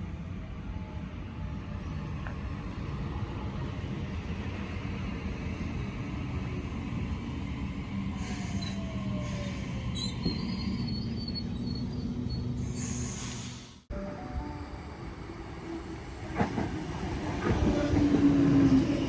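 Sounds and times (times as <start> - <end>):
train rumbling: 0.0 - 19.0
train wheels squealing: 8.2 - 13.5.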